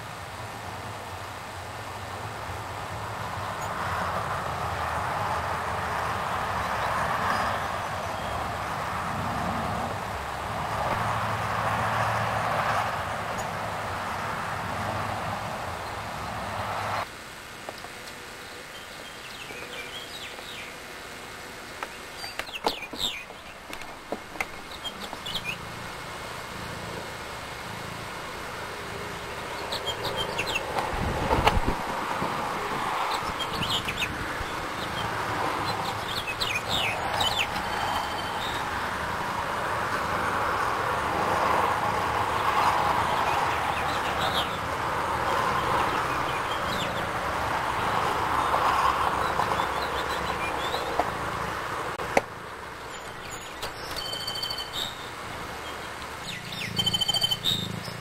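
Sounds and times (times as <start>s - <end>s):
steady rushing noise: 0.0s - 53.9s
bird chirps: 21.9s - 23.6s, 24.5s - 25.7s, 29.5s - 30.7s, 33.1s - 38.6s, 52.9s - 58.0s.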